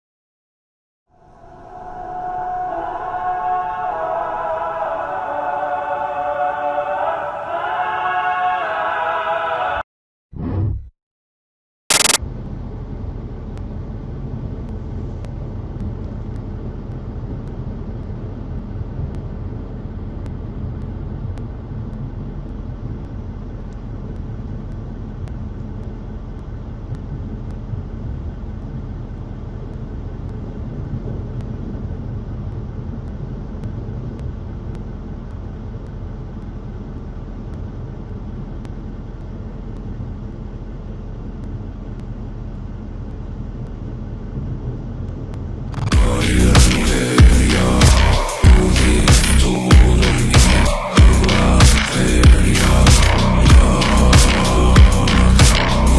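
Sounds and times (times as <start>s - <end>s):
low outdoor rumble: 12.3s - 55.9s.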